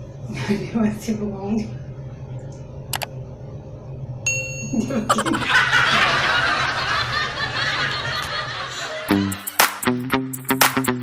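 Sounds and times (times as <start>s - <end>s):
steady low hum: 0.0s - 8.8s
bright ding: 4.3s - 4.9s
burst of laughter: 5.1s - 9.4s.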